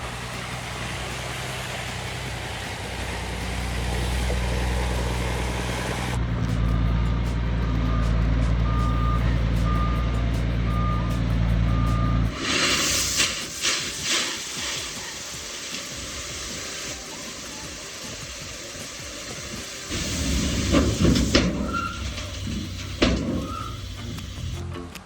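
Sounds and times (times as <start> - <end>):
diesel truck engine running: 0.0 - 24.9
reversing beeper beeps: 6.7 - 10.0
air hiss: 12.3 - 24.6.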